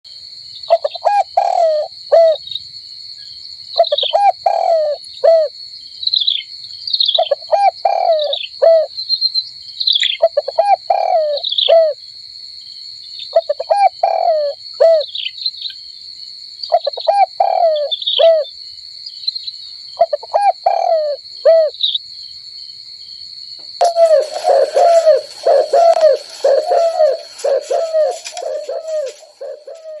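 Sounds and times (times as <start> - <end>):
dove cooing: 0.7 - 2.4, 3.8 - 5.5, 7.2 - 8.9, 10.2 - 12.0, 13.4 - 15.1, 16.8 - 18.5, 20.0 - 21.7, 23.8 - 30.0
steady high-pitched tone: 23.8 - 29.5
high falling bird chirps: 23.8 - 30.0.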